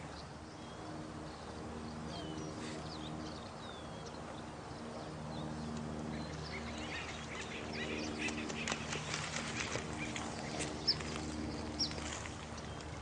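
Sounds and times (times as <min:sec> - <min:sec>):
steady low hum: 0:00.0 - 0:13.0
birds chirping and calling: 0:06.1 - 0:13.0.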